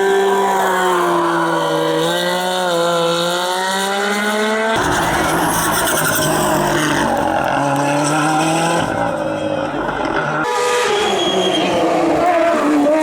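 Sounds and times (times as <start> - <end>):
tyre squeal: 4.8 - 13.0.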